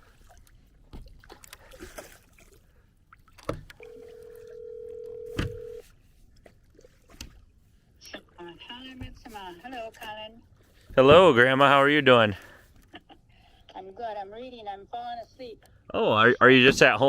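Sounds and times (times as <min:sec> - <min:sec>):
telephone ringback tone: 0:03.8 - 0:05.8.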